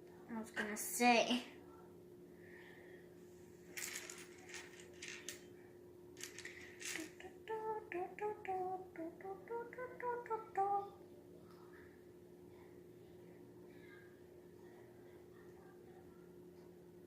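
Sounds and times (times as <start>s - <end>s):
plastic pieces clicking and rustling: 3.8s - 5.5s, 6.2s - 7.3s
girl singing: 6.8s - 11.0s.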